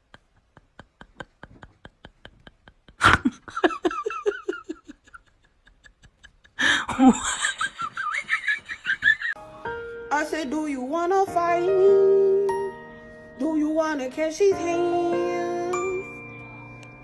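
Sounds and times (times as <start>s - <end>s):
person laughing hard: 0.0s - 9.4s.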